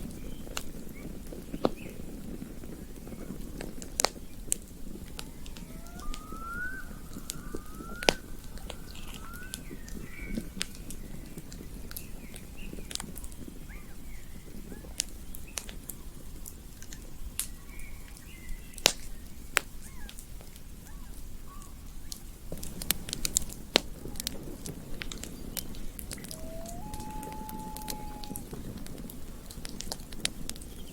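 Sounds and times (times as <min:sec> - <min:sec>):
campfire crackling and popping: 0:00.0 - 0:30.9
faint chirping calls: 0:05.0 - 0:16.2, 0:17.6 - 0:20.2, 0:20.8 - 0:22.4, 0:23.2 - 0:29.6.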